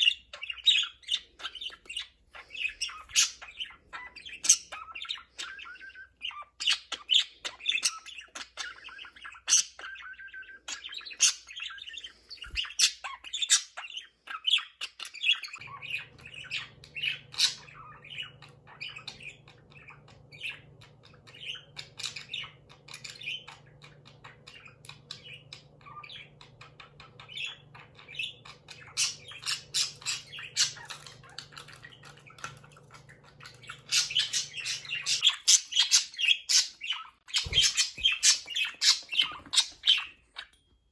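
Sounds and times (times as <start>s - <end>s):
budgerigars chattering: 0.0s - 40.5s.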